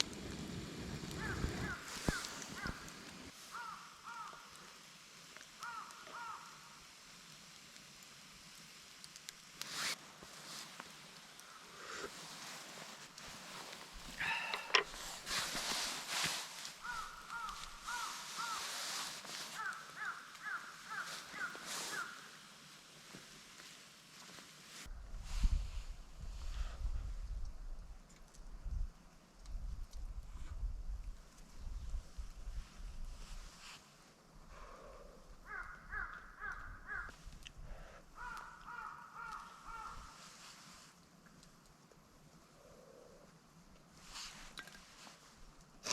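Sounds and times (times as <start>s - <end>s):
background hiss: 0.0s - 45.9s
bird calling: 14.1s - 15.3s, 16.8s - 18.8s.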